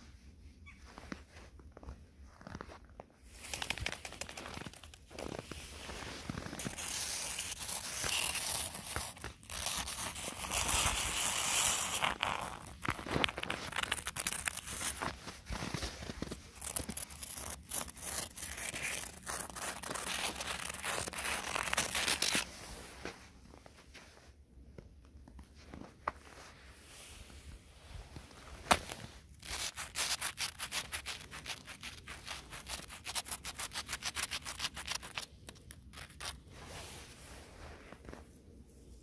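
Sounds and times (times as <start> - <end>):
footsteps crunching through snow: 0.9 - 24.2.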